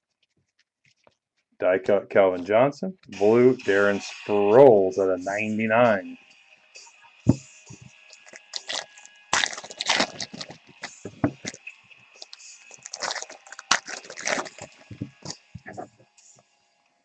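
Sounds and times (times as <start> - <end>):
card wrappers crinkling: 7.3 - 11.6, 12.2 - 15.8.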